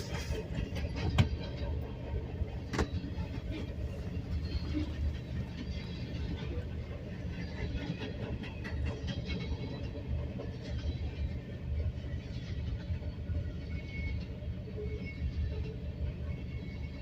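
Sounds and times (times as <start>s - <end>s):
freight train rumbling past: 0.0s - 17.0s.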